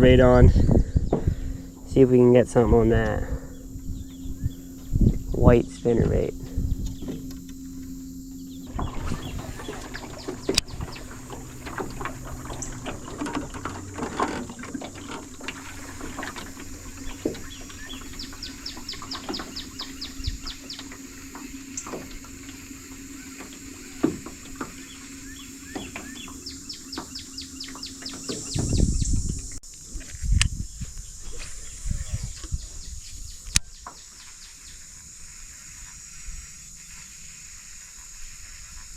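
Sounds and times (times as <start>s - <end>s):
birdsong: 0.0s - 29.6s, 30.5s - 38.9s
steady low hum: 0.0s - 38.9s
small water sounds: 8.6s - 28.7s.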